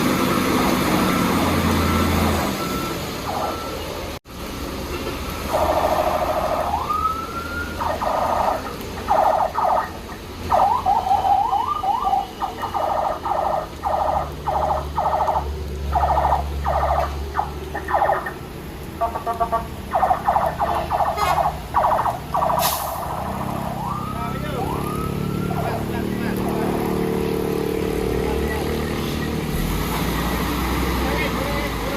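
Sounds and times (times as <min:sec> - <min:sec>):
truck engine running low: 0:00.0 - 0:06.8
vehicle horns honking: 0:19.0 - 0:19.8, 0:20.7 - 0:21.6.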